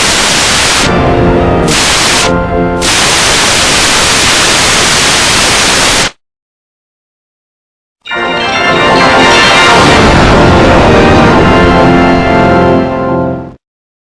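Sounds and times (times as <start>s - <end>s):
heavily distorted music: 8.1s - 12.8s.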